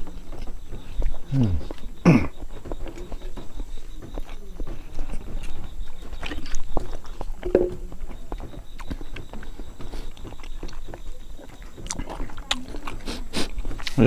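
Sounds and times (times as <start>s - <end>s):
person chewing: 0.0s - 3.1s, 4.1s - 14.0s.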